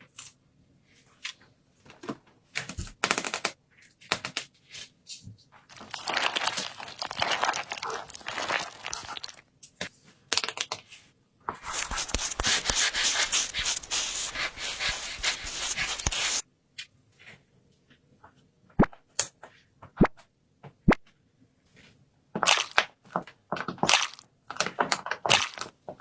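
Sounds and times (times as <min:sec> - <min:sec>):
paper crinkling and rustling: 0:05.7 - 0:09.4, 0:11.6 - 0:16.4.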